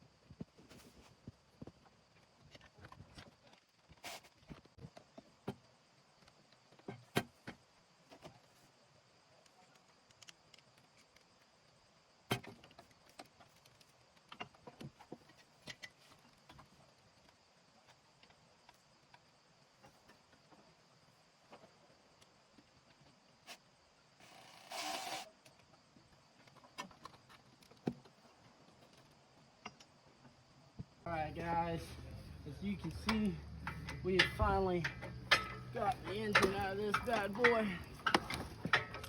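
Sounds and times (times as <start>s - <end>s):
faint clicks and clanks: 25.4s - 39.0s.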